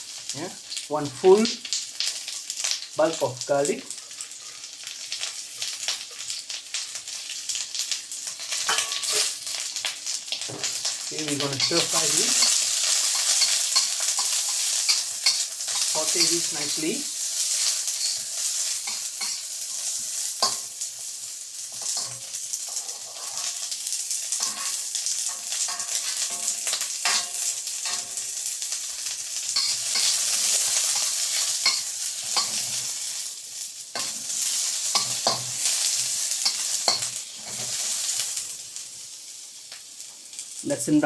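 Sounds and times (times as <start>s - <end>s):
onion and garlic sizzling in oil: 0.0s - 41.0s
utensil scraping a wok: 8.5s - 9.6s, 10.5s - 33.3s, 33.9s - 38.5s.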